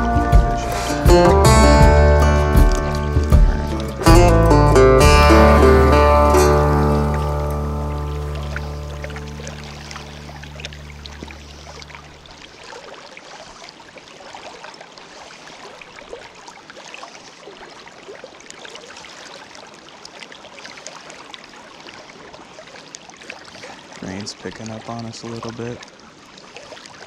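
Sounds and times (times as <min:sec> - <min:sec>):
background music: 0:00.0 - 0:11.1
river water rushing: 0:00.0 - 0:27.0
rain patter on water: 0:02.4 - 0:27.0.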